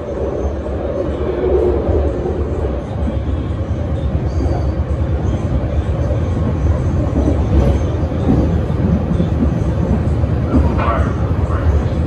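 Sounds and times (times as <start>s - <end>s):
rail car rumbling at speed: 0.0s - 12.0s.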